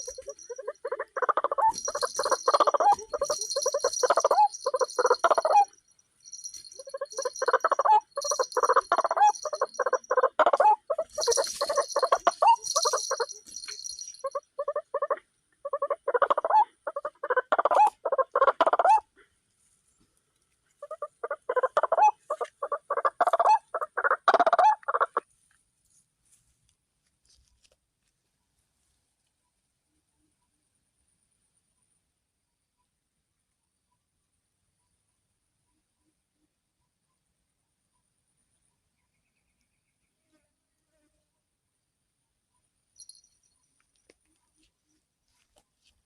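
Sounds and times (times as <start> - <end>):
waterhen harsh croaking calls: 0.0 - 5.7, 6.8 - 13.4, 14.2 - 19.1, 20.8 - 25.2.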